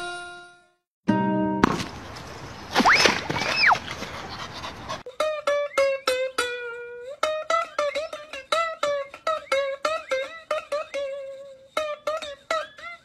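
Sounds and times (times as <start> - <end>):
plucked string tune: 0.0 - 1.8, 5.1 - 13.0.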